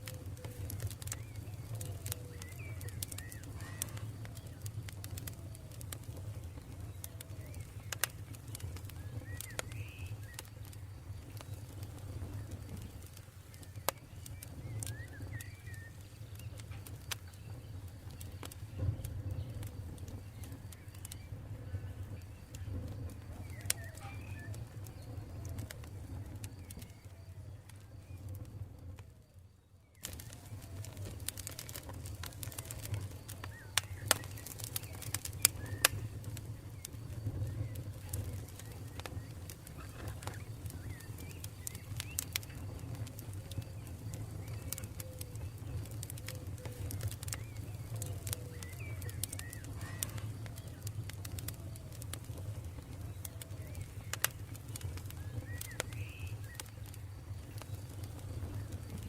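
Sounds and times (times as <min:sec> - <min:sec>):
campfire crackling and popping: 0:00.0 - 0:59.0
birds calling: 0:00.1 - 0:05.5, 0:30.0 - 0:59.0.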